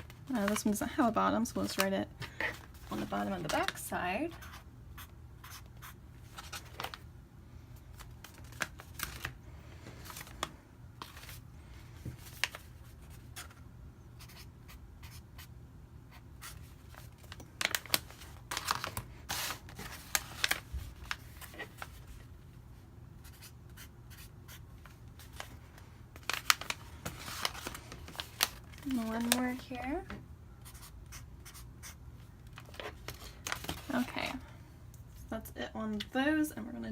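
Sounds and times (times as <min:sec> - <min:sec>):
marker writing on bags: 0:14.2 - 0:15.5.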